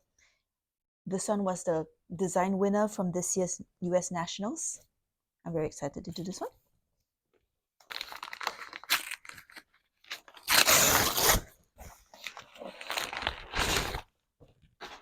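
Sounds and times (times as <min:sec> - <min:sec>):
packaging tearing and crinkling: 0:07.8 - 0:11.6, 0:12.2 - 0:14.1.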